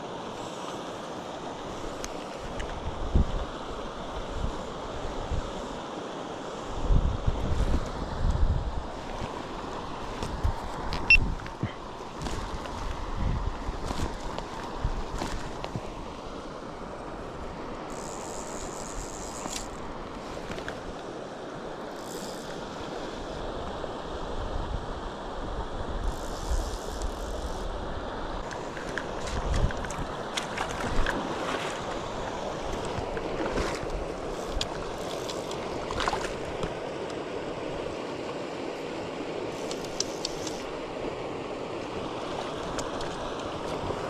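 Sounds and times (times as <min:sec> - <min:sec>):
flowing stream: 0:00.0 - 0:44.0
wind buffeting microphone: 0:10.2 - 0:15.8.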